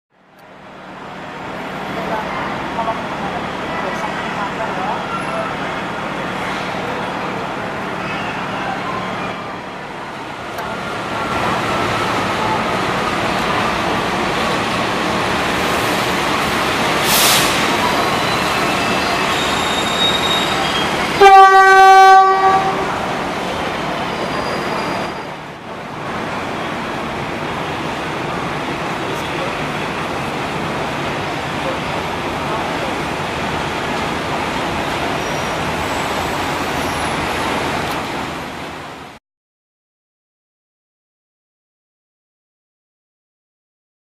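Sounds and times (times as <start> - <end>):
train wheels rumbling on rail: 0.3 - 39.2
faint wheel squeal: 7.9 - 9.6, 17.2 - 21.1, 24.1 - 25.4, 35.2 - 37.5
locomotive horn: 18.2 - 23.2.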